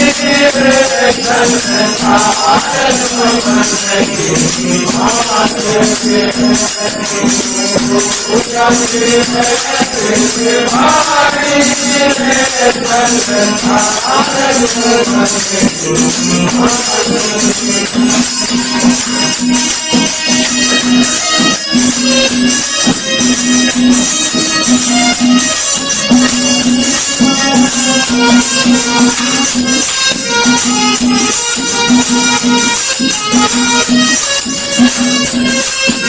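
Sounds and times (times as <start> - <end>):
man singing devotional song: 0.0 - 22.3
hand percussion jingling: 0.0 - 36.0.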